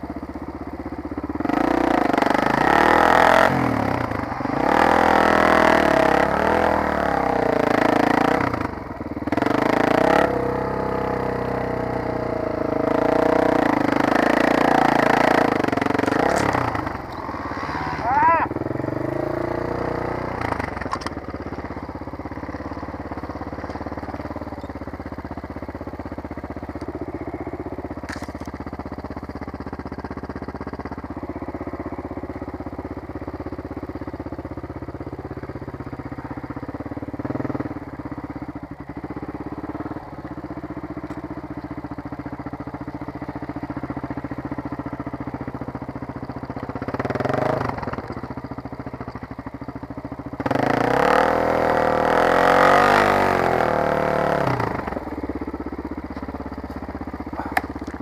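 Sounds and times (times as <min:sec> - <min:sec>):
dirt bike engine revving: 0:01.4 - 0:21.7, 0:46.8 - 0:48.2, 0:50.4 - 0:55.2.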